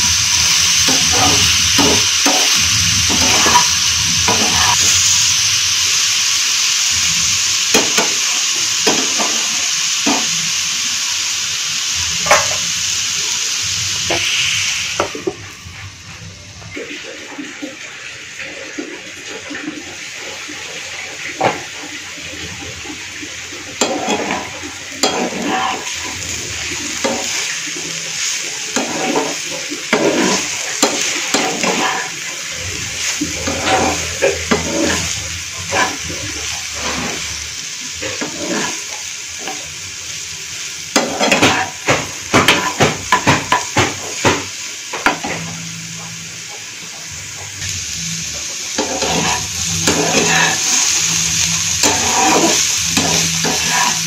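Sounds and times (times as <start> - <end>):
vegetables sizzling in oil: 0.0 - 54.0
spatula scraping and tapping pan: 3.1 - 4.8, 23.8 - 25.9, 28.8 - 32.1, 33.4 - 35.1, 40.9 - 46.1, 48.8 - 50.6, 51.8 - 54.0.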